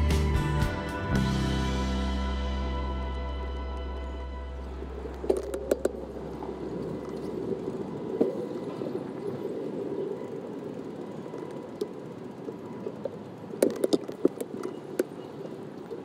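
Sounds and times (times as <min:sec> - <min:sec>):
bicycle rolling on stone paving: 0:03.2 - 0:16.0.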